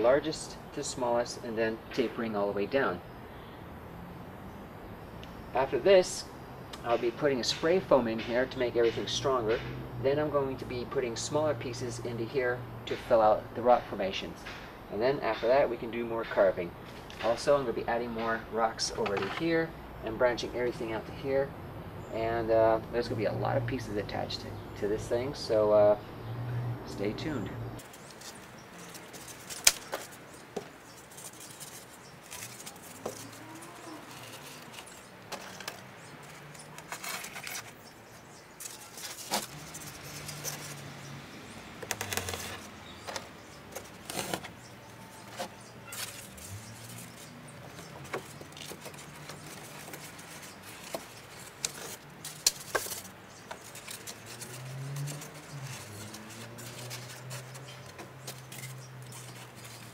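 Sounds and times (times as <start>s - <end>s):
styrofoam rustling: 27.8s - 37.8s, 38.6s - 40.9s, 41.9s - 59.9s.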